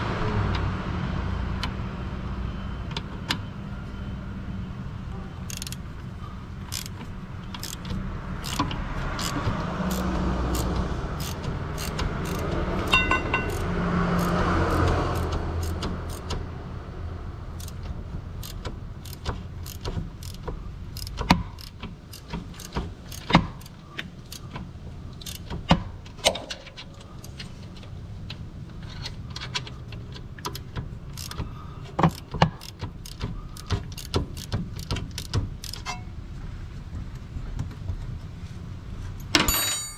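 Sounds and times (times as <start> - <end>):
metallic clinks of hand tools: 10.6 - 16.3.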